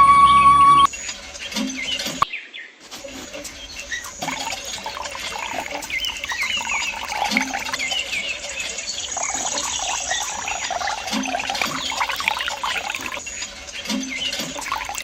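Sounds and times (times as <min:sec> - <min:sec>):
music: 0:00.0 - 0:02.2, 0:10.6 - 0:15.0
birds chirping: 0:00.0 - 0:15.0.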